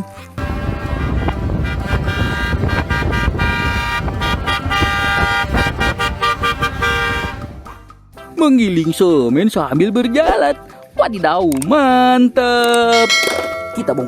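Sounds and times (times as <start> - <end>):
horn tooting: 0.2 - 7.9
engine rumble: 0.4 - 8.0.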